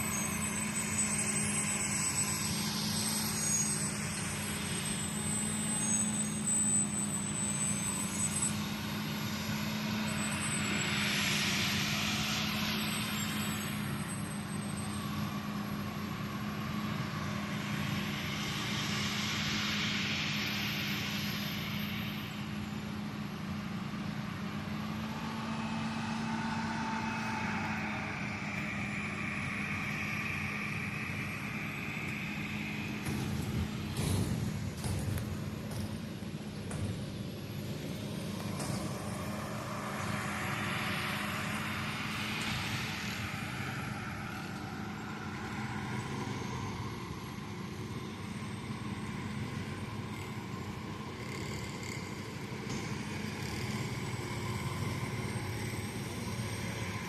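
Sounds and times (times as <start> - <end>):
harvest machinery engine drone: 0.0 - 57.0
rushing noise: 24.1 - 51.6.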